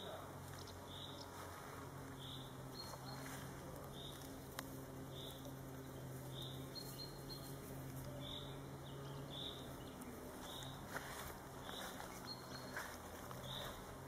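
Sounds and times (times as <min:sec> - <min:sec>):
bird chirping: 0:00.0 - 0:01.4, 0:02.1 - 0:04.4, 0:05.0 - 0:14.0
faint rustles: 0:00.4 - 0:05.5, 0:09.9 - 0:14.0.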